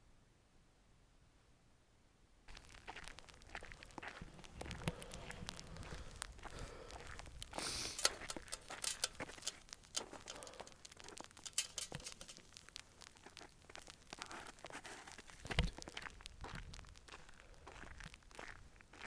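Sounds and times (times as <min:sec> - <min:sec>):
crunching and crackling clicks: 0:02.5 - 0:19.0
rustling hiss: 0:02.6 - 0:15.6.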